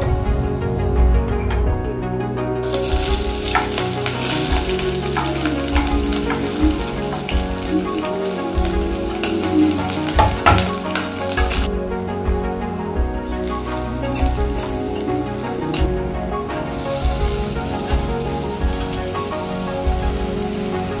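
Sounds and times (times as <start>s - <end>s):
soft background music: 0.0s - 21.0s
food sizzling in a pan: 2.6s - 11.7s, 13.4s - 21.0s.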